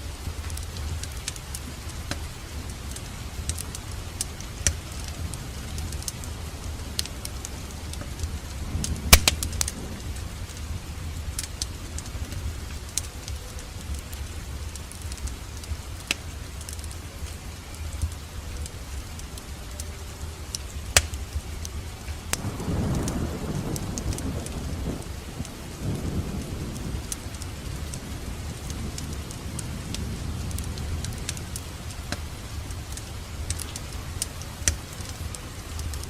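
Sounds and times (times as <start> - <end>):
rushing of flames: 0.0 - 36.0
wood fire crackling: 0.0 - 36.0.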